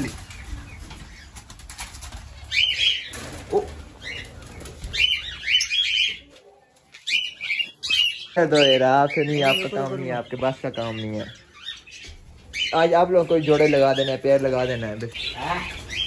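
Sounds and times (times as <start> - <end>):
birds flapping wings: 0.0 - 5.6
birds chirping and squawking: 0.0 - 16.0.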